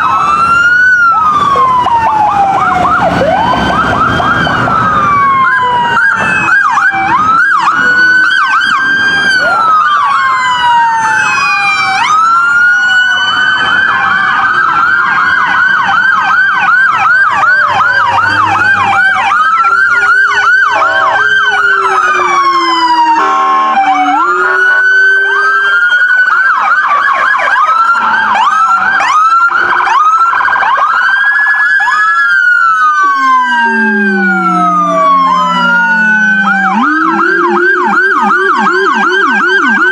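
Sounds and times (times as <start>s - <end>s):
low falling siren tone: 0.0s - 39.9s
police sirens wailing and yelping: 0.0s - 39.9s
horn blast: 23.0s - 24.6s.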